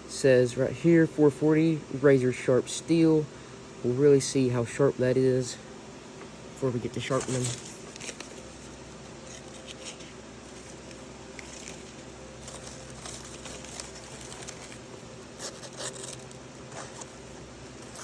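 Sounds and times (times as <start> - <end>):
low hum: 6.3 - 18.0
knife blade tearing paper: 7.0 - 18.0.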